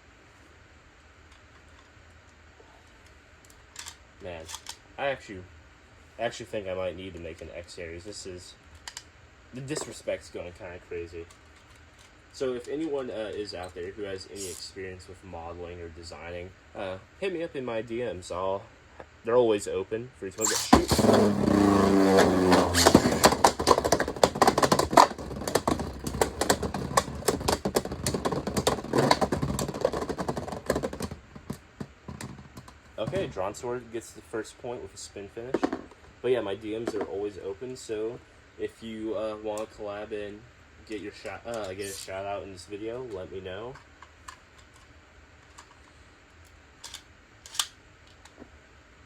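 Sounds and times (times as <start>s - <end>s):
spinning top whir: 20.4s - 31.1s.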